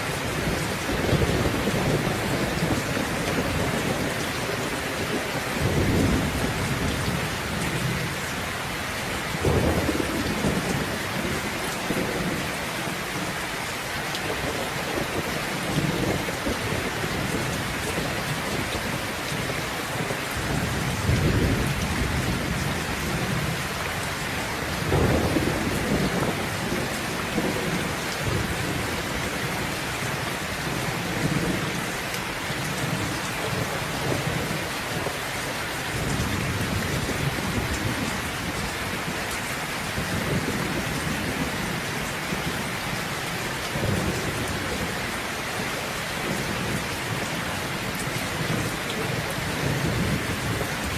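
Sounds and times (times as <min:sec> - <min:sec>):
heavy rain: 0:00.0 - 0:50.9
rolling thunder: 0:09.3 - 0:12.5, 0:20.3 - 0:32.0.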